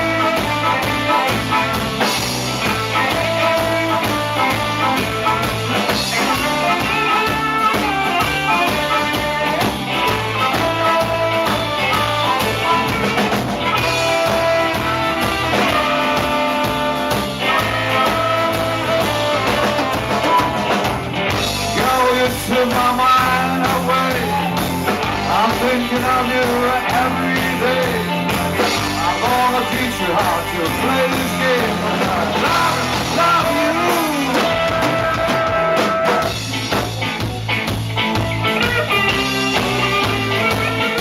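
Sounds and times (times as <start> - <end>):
rock band music: 0.0 - 41.0
person singing: 13.7 - 20.8, 21.4 - 36.3.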